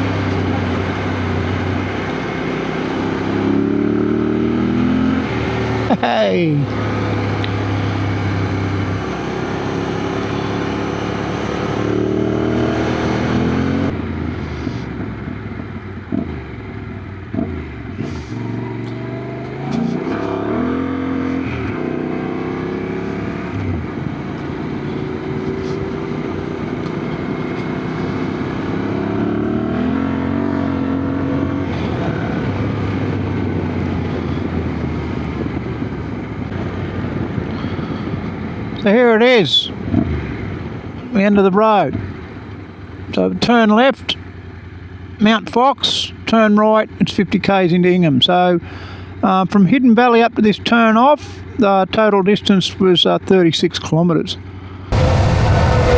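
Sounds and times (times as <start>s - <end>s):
motorcycle engine accelerating: 0.0s - 47.0s, 54.4s - 55.9s
wind noise: 31.7s - 38.8s.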